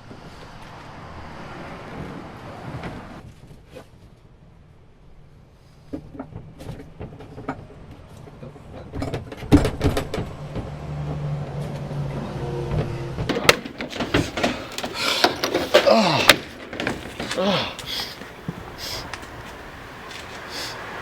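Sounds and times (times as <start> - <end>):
loud thumps: 12.7 - 19.3
knocks and clicks: 12.7 - 19.4.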